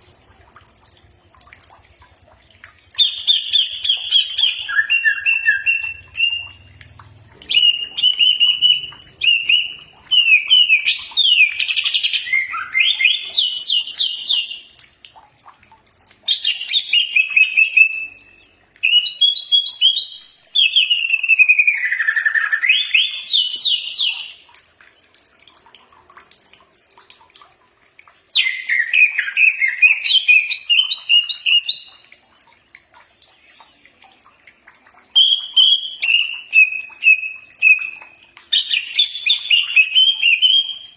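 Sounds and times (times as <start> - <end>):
bird singing rapid notes: 3.0 - 6.8, 7.4 - 14.7.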